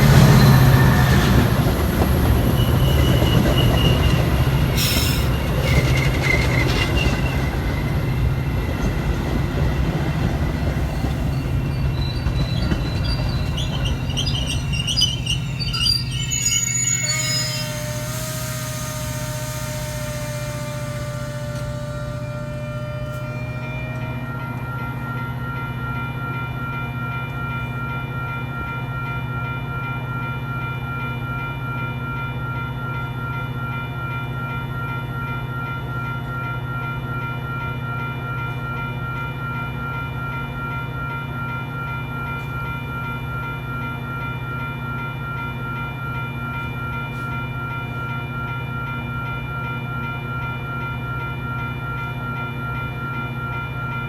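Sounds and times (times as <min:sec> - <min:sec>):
diesel locomotive idling: 0:00.0 - 0:25.8
constant whine: 0:00.0 - 0:26.2.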